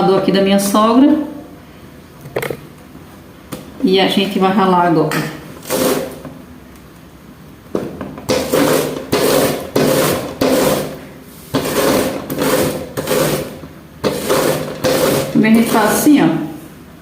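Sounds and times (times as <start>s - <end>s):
corn scraping on hand grater: 5.6s - 6.2s, 8.3s - 16.1s.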